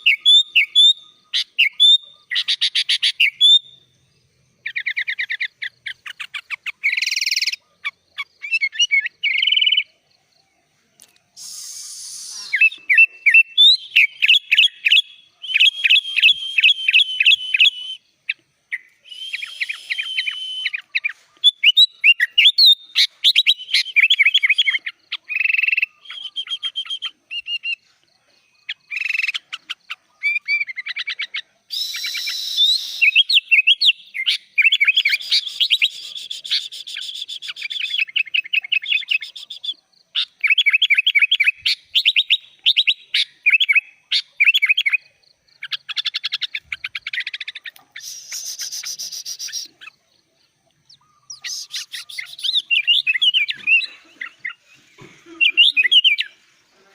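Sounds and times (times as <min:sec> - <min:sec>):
bird singing high chirps and trills: 0:00.0 - 0:56.9.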